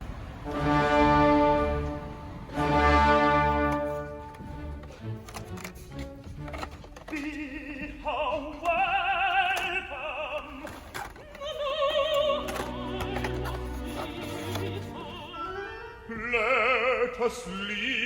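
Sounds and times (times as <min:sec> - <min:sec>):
opera singing with vibrato: 0:07.1 - 0:18.0.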